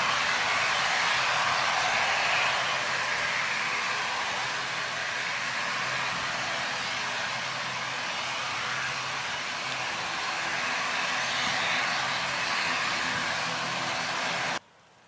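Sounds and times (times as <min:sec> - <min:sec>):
airliner passing overhead: 0:00.0 - 0:14.6.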